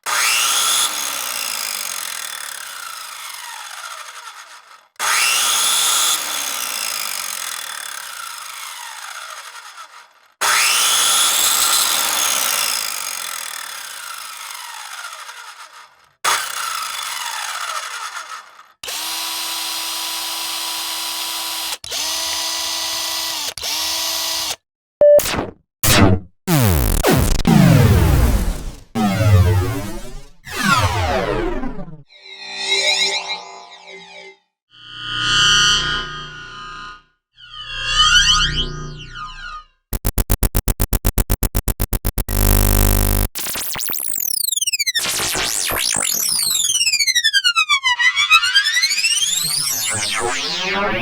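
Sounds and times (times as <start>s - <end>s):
small electric motor whine: 1.9s - 24.6s, 34.8s - 40.4s, 42.1s - 44.0s
short beep: 25.0s - 25.3s
falling electronic sweeps: 29.0s - 35.8s, 37.5s - 51.0s.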